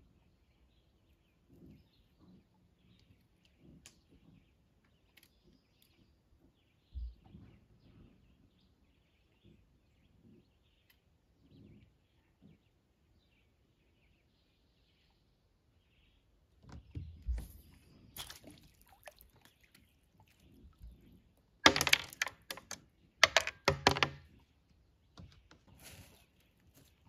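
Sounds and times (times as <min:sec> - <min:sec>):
clicks and knocks: 0:21.6 - 0:24.4.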